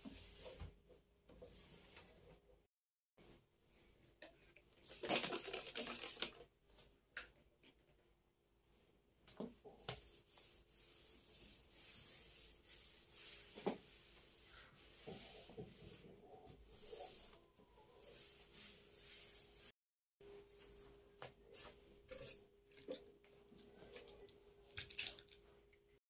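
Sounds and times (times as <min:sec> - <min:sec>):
faint steady rubbing: 0:09.6 - 0:22.5.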